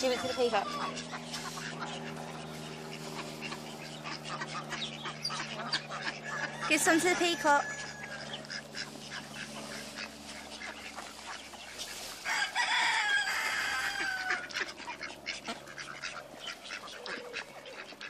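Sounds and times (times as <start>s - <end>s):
chickens clucking: 0.0s - 18.0s
ducks quacking: 0.0s - 18.0s
rooster crowing: 6.1s - 8.5s, 12.2s - 14.6s.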